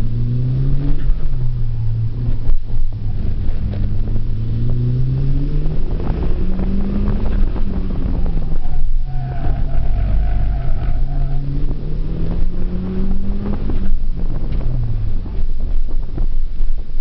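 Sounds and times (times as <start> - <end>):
car engine revving: 0.0 - 16.4.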